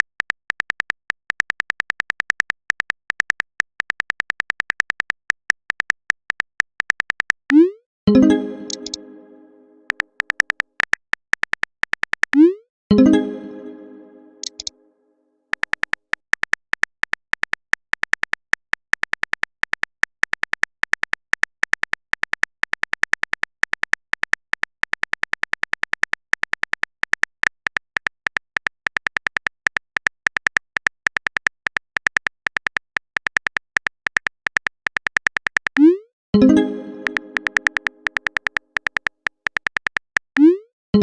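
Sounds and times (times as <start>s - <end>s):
rapid typing clicks: 0.0s - 7.4s, 14.4s - 14.7s, 15.6s - 35.9s, 36.7s - 40.3s.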